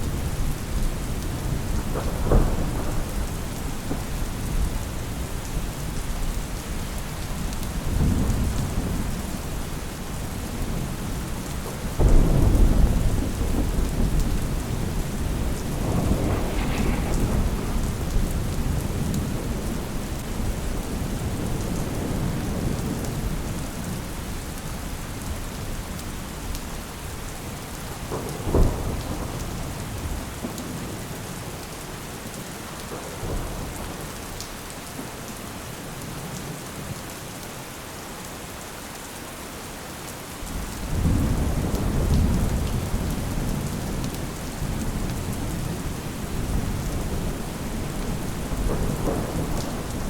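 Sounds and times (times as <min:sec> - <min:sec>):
rolling thunder: 0:00.0 - 0:06.4, 0:07.4 - 0:24.0, 0:27.9 - 0:31.5, 0:40.6 - 0:50.0
steady rain: 0:00.0 - 0:50.0.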